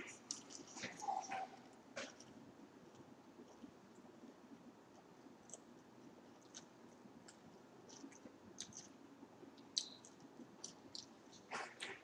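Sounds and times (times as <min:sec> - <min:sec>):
faint chewing: 0:00.0 - 0:12.0
soft mouth clicks: 0:09.6 - 0:11.1.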